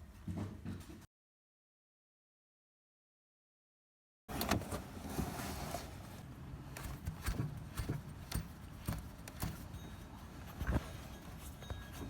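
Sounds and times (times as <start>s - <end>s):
irregular knocks and rattles: 6.8s - 12.0s.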